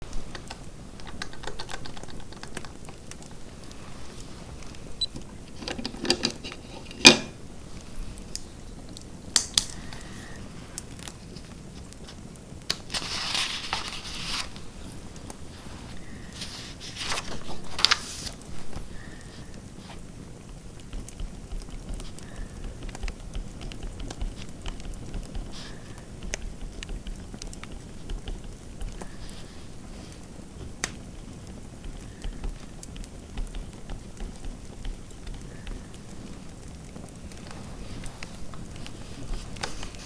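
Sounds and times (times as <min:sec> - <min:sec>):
fireplace crackling: 0:00.0 - 0:40.0.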